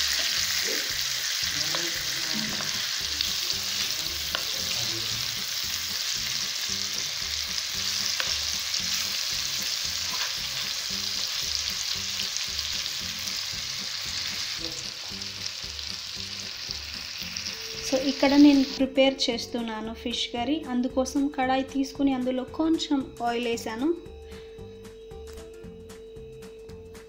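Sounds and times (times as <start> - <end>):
fish sizzling in hot oil: 0.0 - 18.8.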